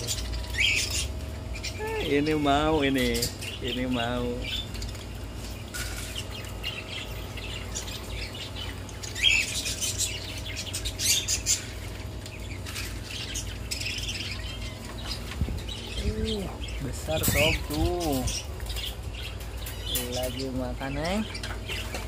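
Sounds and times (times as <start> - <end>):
caged birds chirping: 0.0 - 22.0
steady low hum: 0.0 - 22.0.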